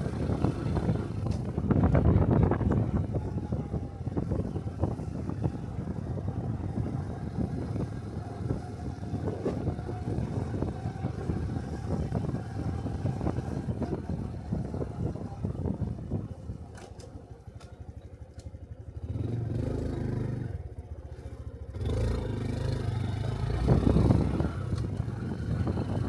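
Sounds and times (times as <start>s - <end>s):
wind buffeting microphone: 0.0s - 17.0s, 21.8s - 26.0s
motorcycle engine running: 0.0s - 26.0s.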